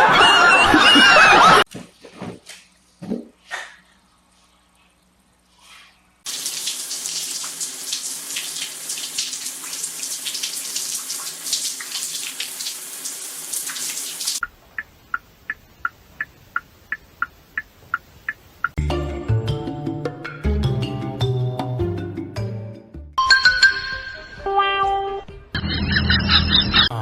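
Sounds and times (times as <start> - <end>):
water running from a tap: 6.3 - 14.4.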